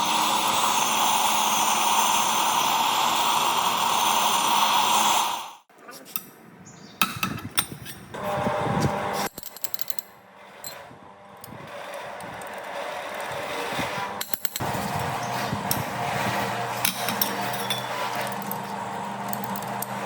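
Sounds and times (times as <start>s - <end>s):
metal tools clinking and knocking: 16.8s - 18.7s.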